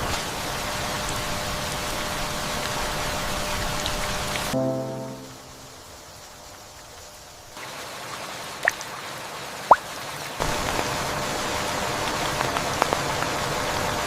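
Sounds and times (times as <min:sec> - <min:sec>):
rain falling: 0:00.0 - 0:14.0
rising plinks: 0:04.6 - 0:06.0.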